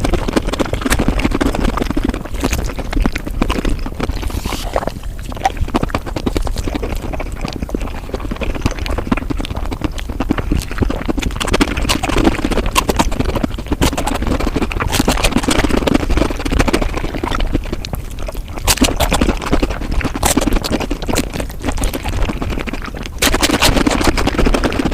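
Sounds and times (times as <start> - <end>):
sped up chewing and crunching: 0.0 - 24.9
low rumble: 2.6 - 8.4.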